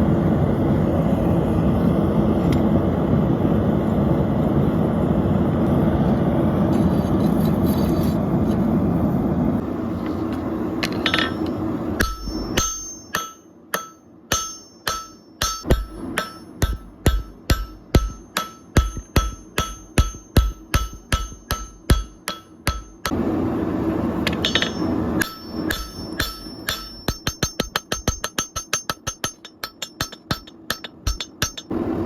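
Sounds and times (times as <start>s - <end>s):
steady roaring noise: 0.0s - 32.0s
hammer striking hot steel on anvil: 10.8s - 23.2s, 24.2s - 31.8s.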